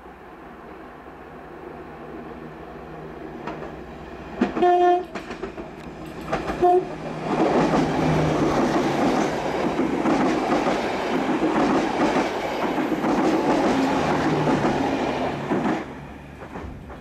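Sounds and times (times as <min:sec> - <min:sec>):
train wheels clattering on rails: 0:03.4 - 0:17.0.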